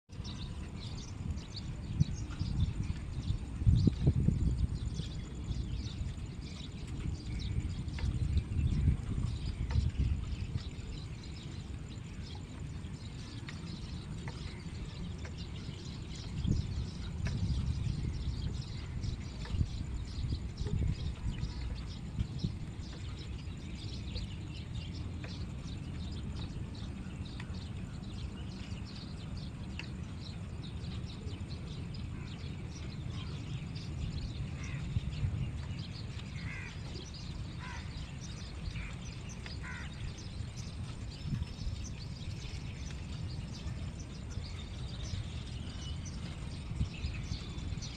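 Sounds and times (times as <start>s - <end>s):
birds chirping and calling: 30.8s - 47.9s.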